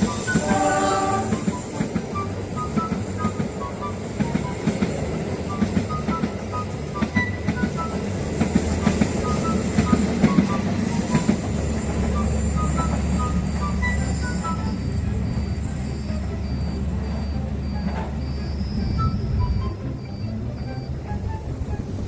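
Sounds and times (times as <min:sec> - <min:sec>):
wheels clacking over track: 0:00.0 - 0:15.6
train rumbling: 0:00.0 - 0:22.0.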